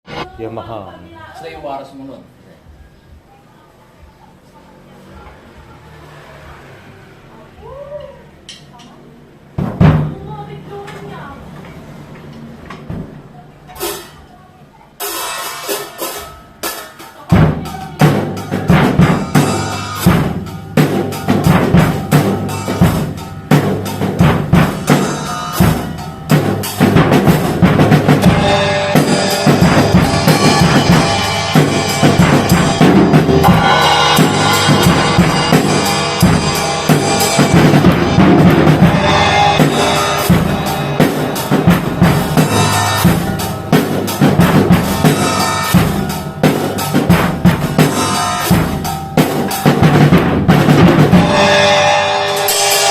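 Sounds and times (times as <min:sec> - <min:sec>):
drum kit groove: 0:08.0 - 0:52.9
cymbals crashing: 0:15.0 - 0:52.9.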